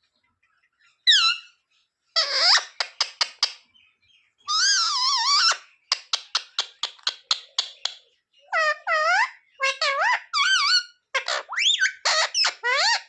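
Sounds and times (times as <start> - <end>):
parrot calling: 1.1 - 1.6, 2.2 - 3.6, 4.5 - 7.9, 8.5 - 13.0
parrot clicking chirps: 5.4 - 8.0.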